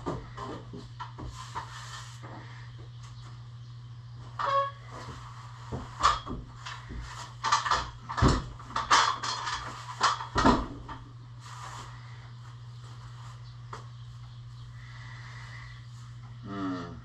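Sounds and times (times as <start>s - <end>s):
steady low hum: 0.0s - 17.0s
irregular knocks and clatters: 5.7s - 11.0s.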